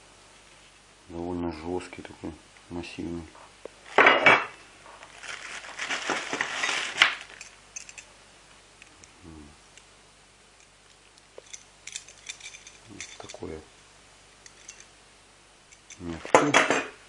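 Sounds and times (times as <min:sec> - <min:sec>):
rustling and scraping: 0:03.3 - 0:08.1, 0:11.4 - 0:13.6
sharp metallic clink: 0:11.4 - 0:13.6, 0:14.4 - 0:14.9
metal parts knocking: 0:11.5 - 0:13.5.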